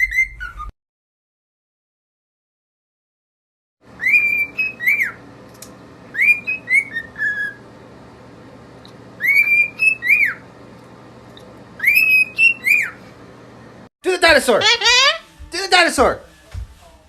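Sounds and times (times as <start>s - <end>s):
parrot whistling: 0.0s - 0.7s, 4.0s - 5.2s, 6.1s - 7.6s, 9.2s - 10.4s, 11.8s - 13.0s, 14.6s - 15.3s.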